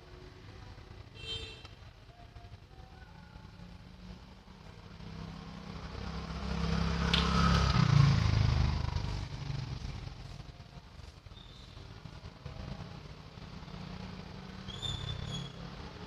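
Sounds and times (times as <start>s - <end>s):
motor vehicle passing by: 3.6s - 16.0s.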